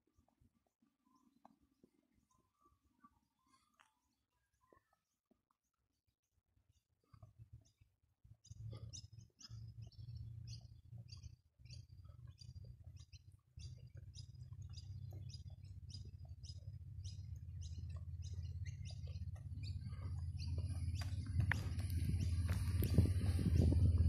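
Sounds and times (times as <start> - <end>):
bird chirping: 6.7 - 24.0
low rumble: 9.6 - 24.0.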